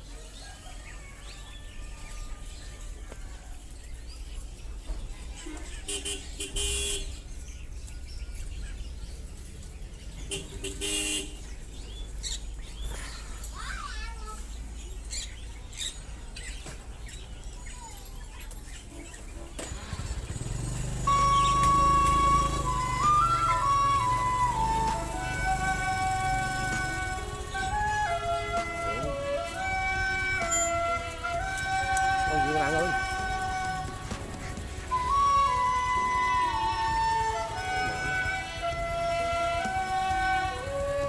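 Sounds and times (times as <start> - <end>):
traffic hum: 0.0 - 41.0
vehicle horn honking: 5.9 - 7.2, 10.3 - 11.5, 21.0 - 34.6.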